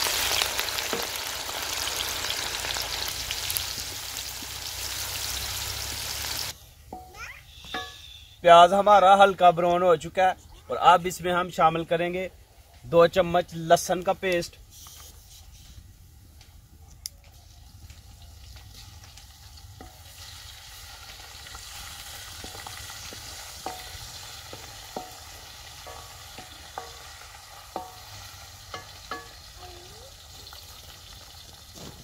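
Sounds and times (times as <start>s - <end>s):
frying in hot oil: 0.0s - 6.6s, 15.5s - 32.0s.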